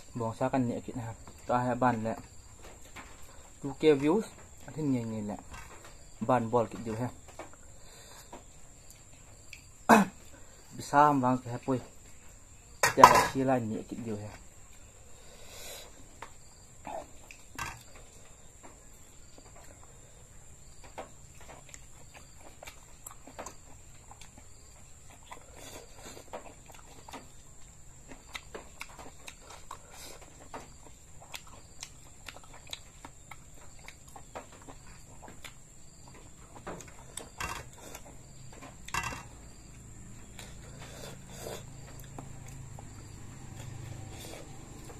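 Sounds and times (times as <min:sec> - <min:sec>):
chewing with mouth clicks: 0:20.8 - 0:38.8, 0:39.7 - 0:44.9.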